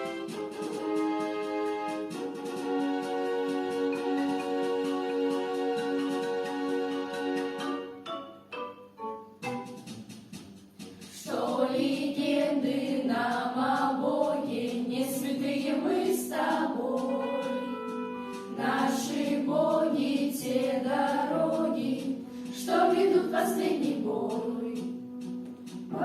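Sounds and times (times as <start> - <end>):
musical accompaniment: 0.0 - 26.0
person singing: 13.6 - 22.0.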